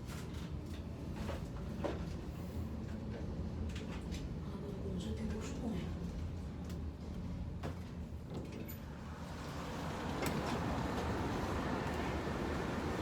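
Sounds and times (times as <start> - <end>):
subway train rumble: 8.9 - 13.0.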